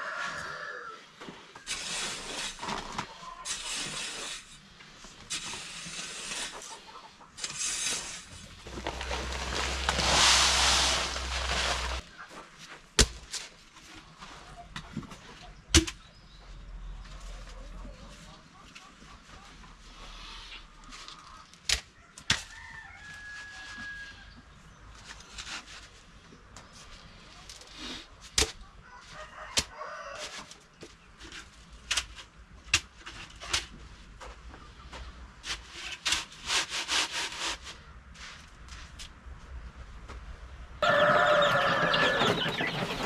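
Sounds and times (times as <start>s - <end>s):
poultry clucking: 6.5s - 7.4s, 17.0s - 21.5s, 40.8s - 43.0s.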